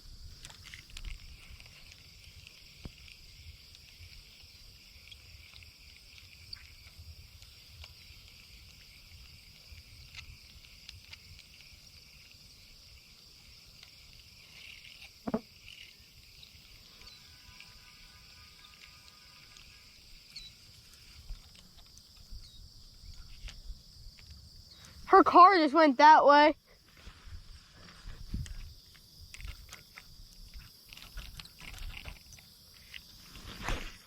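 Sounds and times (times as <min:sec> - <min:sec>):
insects chirping: 0:00.0 - 0:34.0
small clicks: 0:28.4 - 0:33.9.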